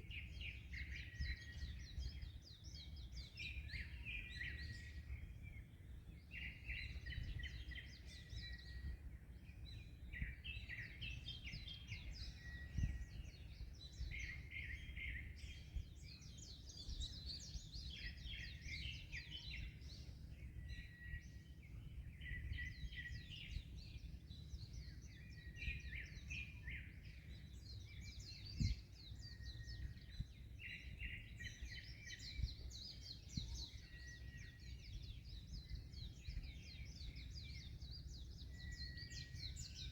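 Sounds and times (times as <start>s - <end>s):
songbirds chirping and trilling: 0.0s - 39.9s
wind: 0.0s - 39.9s.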